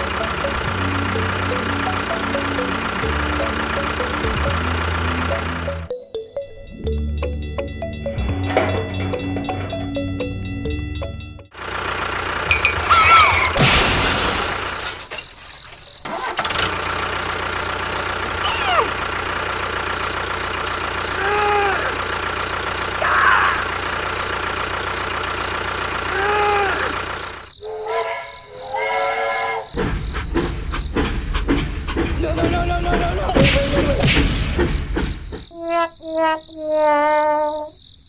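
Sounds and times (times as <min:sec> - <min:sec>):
engine running: 0:00.0 - 0:05.9, 0:06.5 - 0:35.5
short arching tone: 0:27.6 - 0:29.7.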